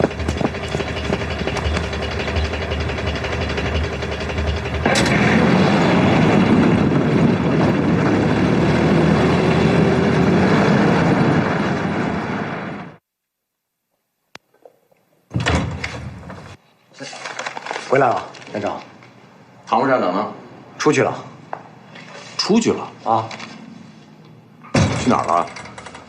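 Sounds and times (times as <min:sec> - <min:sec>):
car driving off: 0:00.0 - 0:13.0
rush of vehicle noise: 0:00.0 - 0:13.0.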